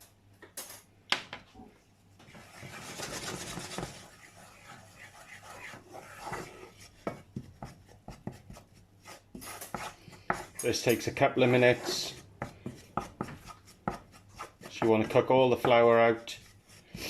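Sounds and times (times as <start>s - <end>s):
utensil scraping a pan: 2.3s - 17.0s.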